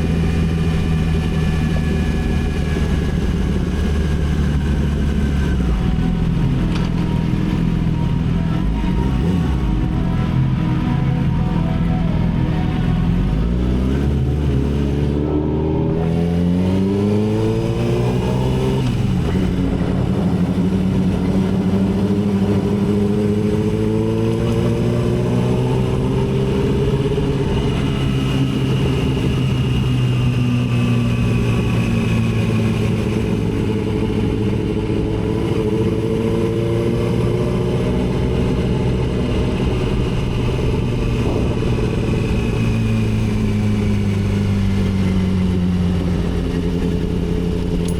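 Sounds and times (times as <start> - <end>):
gear change: 0.3 - 47.9
motorcycle engine pulling hard: 13.1 - 47.9.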